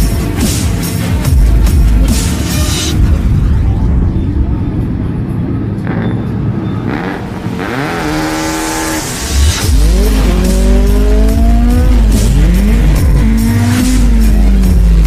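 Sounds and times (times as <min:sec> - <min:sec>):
car engine revving: 0:04.5 - 0:15.0.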